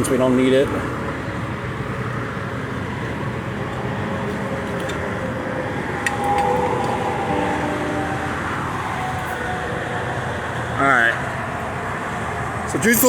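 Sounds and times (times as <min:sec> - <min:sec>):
highway traffic noise: 0:00.0 - 0:13.0.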